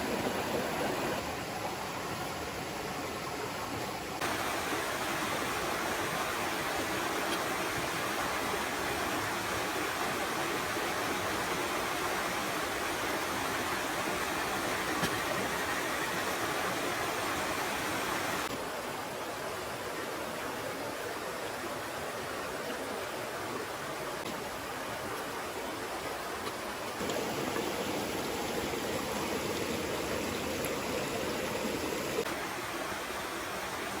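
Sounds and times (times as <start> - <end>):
stream babbling over rocks: 4.2 - 18.5, 24.4 - 34.0.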